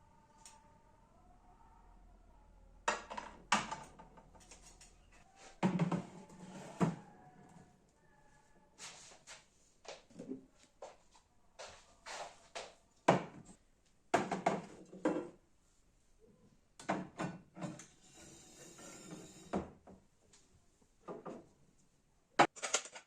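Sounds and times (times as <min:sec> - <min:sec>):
knocks and clunks of wooden doors: 0:14.1 - 0:14.8.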